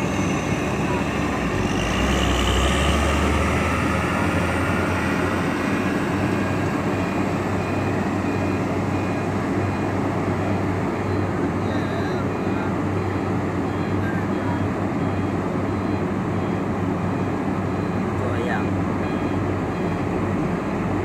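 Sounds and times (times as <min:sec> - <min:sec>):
truck engine rumbling: 0:00.0 - 0:21.0.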